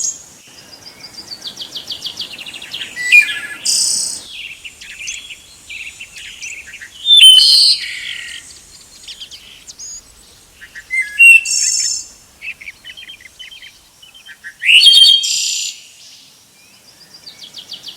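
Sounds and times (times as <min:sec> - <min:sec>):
loud high bird calls: 0:00.0 - 0:16.0
soft quick bird chirps: 0:01.6 - 0:15.5.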